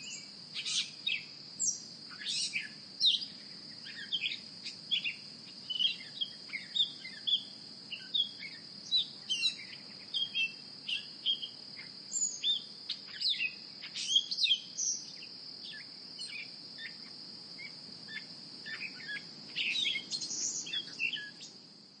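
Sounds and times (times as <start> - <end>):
birds chirping and calling: 0.0 - 1.3, 2.2 - 11.6, 12.2 - 15.1, 18.7 - 21.4.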